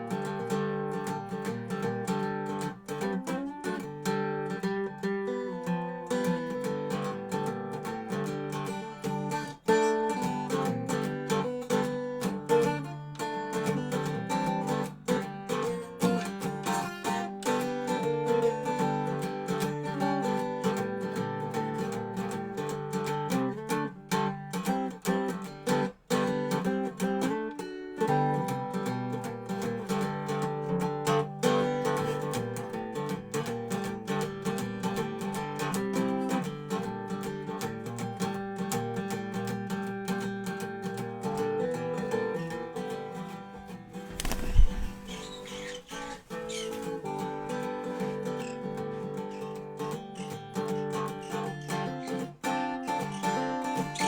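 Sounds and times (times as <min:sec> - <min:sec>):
resonator guitar playing: 0:45.0 - 0:54.0.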